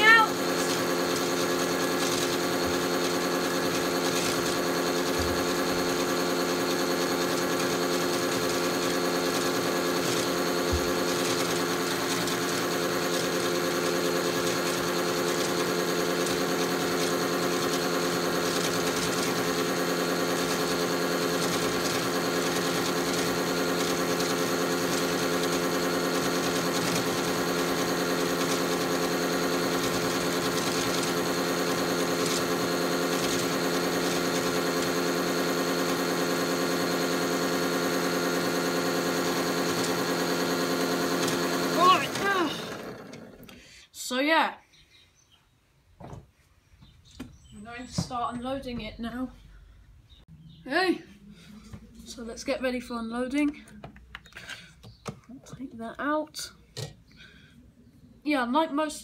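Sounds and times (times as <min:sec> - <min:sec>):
toy washing machine motor humming: 0:00.0 - 0:44.1.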